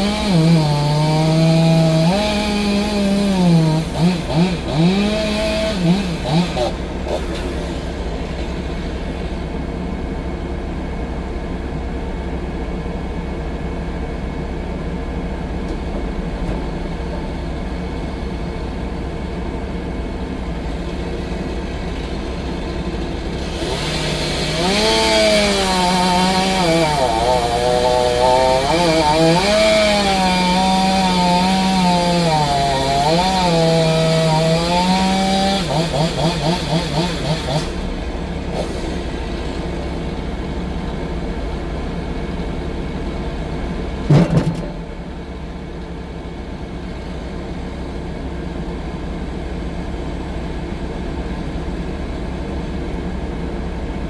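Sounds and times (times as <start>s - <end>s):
chainsaw cutting wood: 0.0s - 9.4s, 20.6s - 40.9s
low engine hum: 3.4s - 24.5s, 37.7s - 54.0s.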